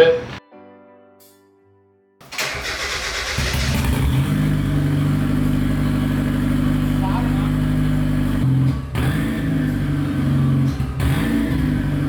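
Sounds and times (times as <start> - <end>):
car engine cranking: 2.2 - 12.0
car engine idling: 2.4 - 12.0.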